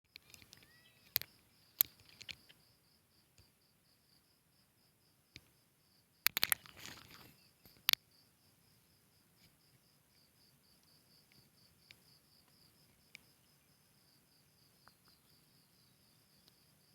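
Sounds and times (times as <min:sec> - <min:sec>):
brief rustle: 0:00.1 - 0:02.6, 0:06.3 - 0:07.9
sharp clicks: 0:00.1 - 0:02.6, 0:06.2 - 0:08.0
insect chirping: 0:00.1 - 0:16.9.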